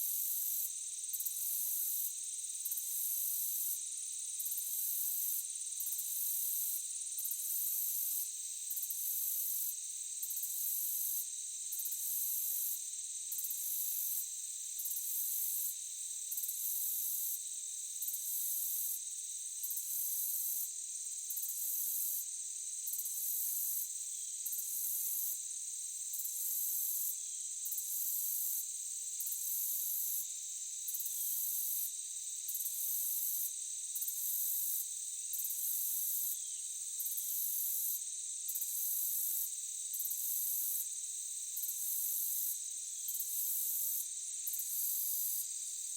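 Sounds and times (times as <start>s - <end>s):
chirring insects drone: 30.0s - 39.0s.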